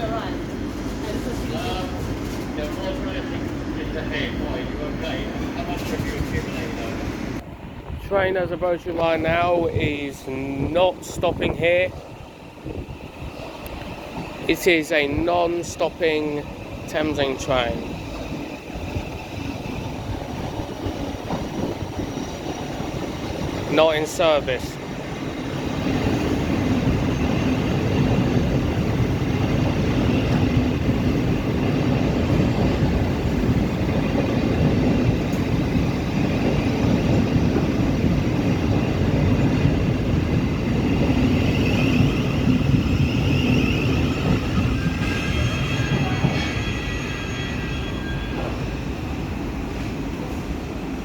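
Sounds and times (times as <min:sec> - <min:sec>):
train wheels rumbling on rail: 0:00.0 - 0:51.0
high-pitched squealing: 0:41.1 - 0:48.8.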